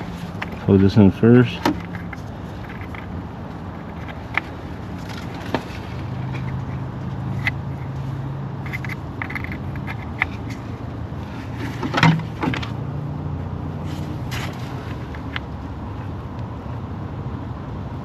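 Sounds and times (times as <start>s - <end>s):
steady low hum: 0.0s - 18.0s
plastic parts clicking and knocking: 0.3s - 0.7s, 1.5s - 3.2s, 3.8s - 7.8s, 8.6s - 10.6s, 11.6s - 12.8s.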